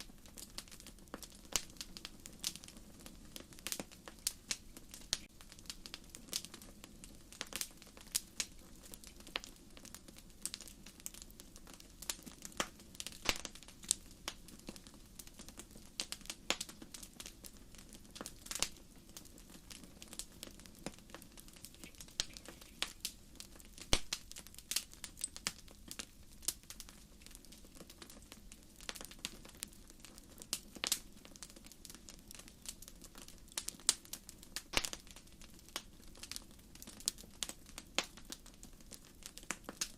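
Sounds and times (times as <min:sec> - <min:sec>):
low hiss of flame: 0:00.0 - 0:15.4, 0:16.0 - 0:29.8
firewood crackling and popping: 0:00.0 - 0:39.9.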